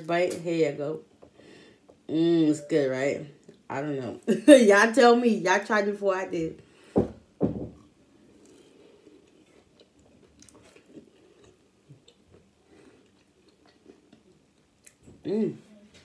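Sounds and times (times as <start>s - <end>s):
person chewing: 8.2s - 15.1s.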